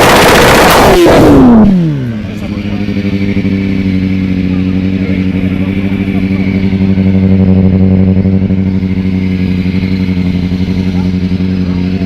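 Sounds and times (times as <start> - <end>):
motorcycle engine idling: 1.7 - 12.0.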